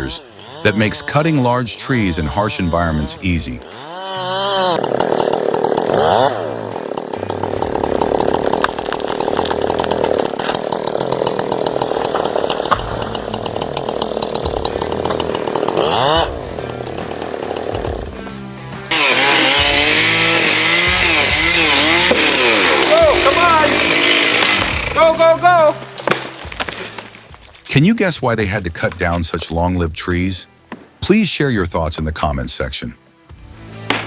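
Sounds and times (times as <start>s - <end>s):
chainsaw cutting through tree: 0.0s - 27.9s, 33.8s - 34.0s
background music: 0.0s - 34.0s.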